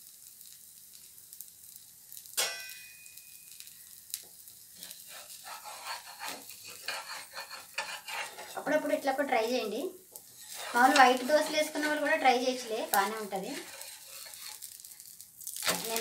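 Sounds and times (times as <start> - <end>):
dosa sizzling on a griddle: 0.0 - 16.0
metal clink: 2.4 - 3.4
metal spatula scraping: 4.7 - 16.0.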